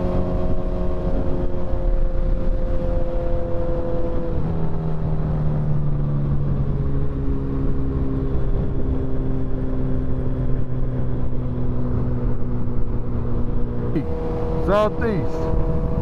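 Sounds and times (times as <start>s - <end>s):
road and wind rumble: 0.0s - 16.0s.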